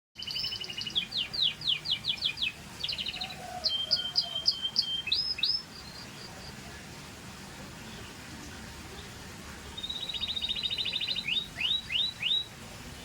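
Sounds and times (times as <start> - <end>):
canary singing: 0.2 - 6.6, 9.7 - 13.0.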